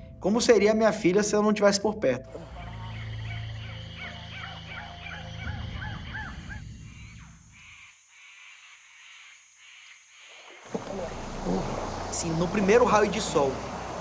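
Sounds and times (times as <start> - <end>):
low steady hum: 10.7 - 14.0.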